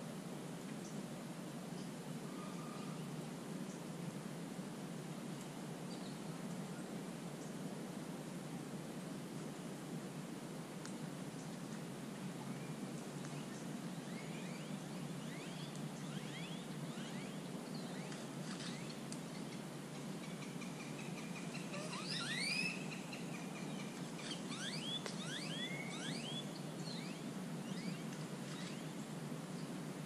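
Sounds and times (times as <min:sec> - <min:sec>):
low background noise: 0:00.0 - 0:30.0
small birds chirping: 0:12.5 - 0:29.8
bird whistle: 0:14.4 - 0:18.2, 0:21.5 - 0:23.1, 0:24.2 - 0:28.0.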